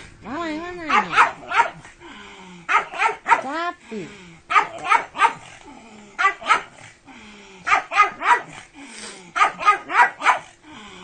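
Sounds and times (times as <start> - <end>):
dog barking: 0.9 - 1.8, 2.7 - 3.5, 4.5 - 5.5, 6.2 - 6.8, 7.7 - 8.6, 9.4 - 10.5.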